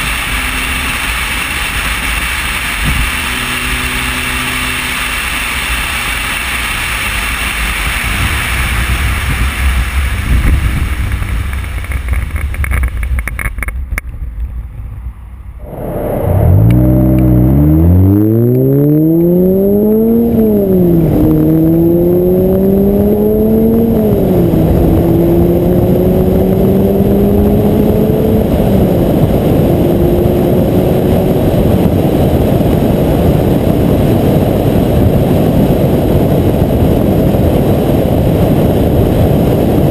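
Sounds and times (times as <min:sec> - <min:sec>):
car engine upshifting: 0:00.0 - 0:14.8, 0:15.6 - 0:33.2
wind rushing: 0:07.5 - 0:11.9, 0:14.2 - 0:39.9.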